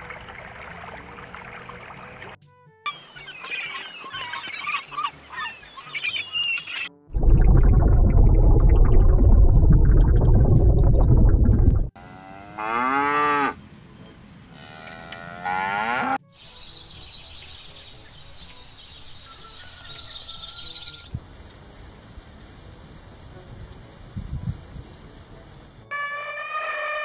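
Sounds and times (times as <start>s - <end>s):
loud low rumble: 7.1s - 11.9s
cow mooing: 12.0s - 13.6s, 14.6s - 16.2s.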